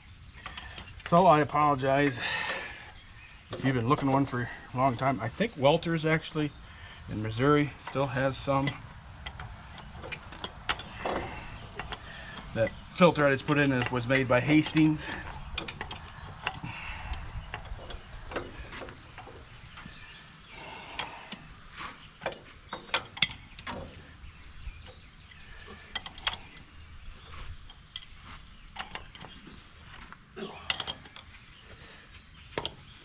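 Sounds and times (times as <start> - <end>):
tools and metal parts clicking: 0.3 - 6.5, 7.1 - 33.0.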